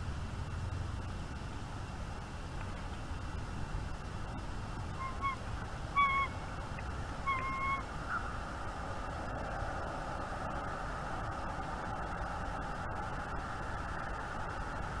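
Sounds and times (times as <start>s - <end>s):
steady outdoor hiss: 0.0s - 15.0s
bird calling: 5.0s - 6.4s, 7.2s - 8.3s.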